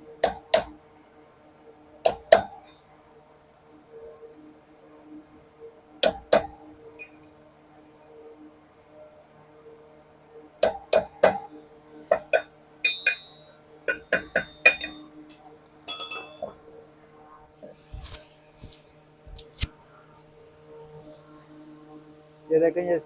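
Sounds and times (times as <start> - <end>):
low hum: 0.0 - 23.0
metal parts clinking: 14.6 - 16.5.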